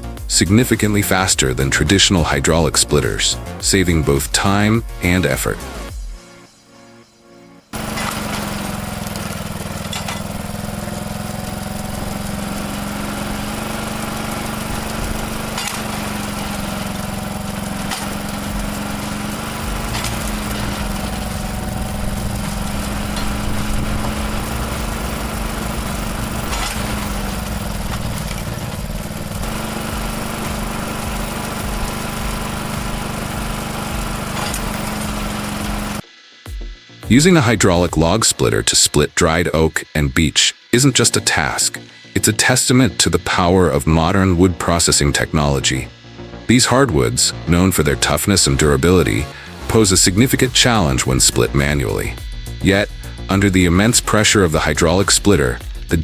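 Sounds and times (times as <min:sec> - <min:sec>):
small petrol engine running: 0:07.7 - 0:36.1, 0:40.8 - 0:56.0.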